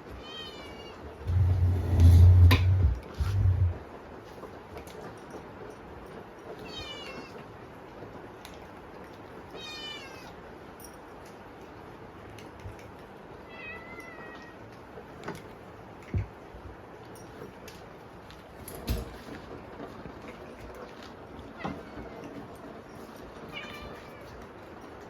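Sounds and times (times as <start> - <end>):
heavy rain hissing: 1.2 - 3.9.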